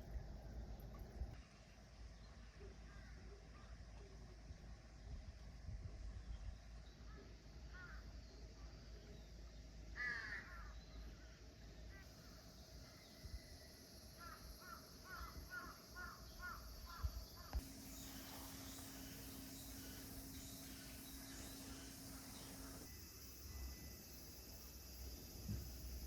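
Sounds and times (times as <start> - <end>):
steady low hum: 0.0 - 26.0
crow cawing: 10.0 - 10.7.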